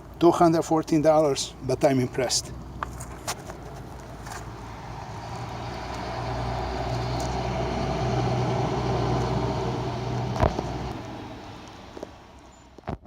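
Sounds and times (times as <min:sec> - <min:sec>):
vehicle driving past: 0:02.4 - 0:12.7.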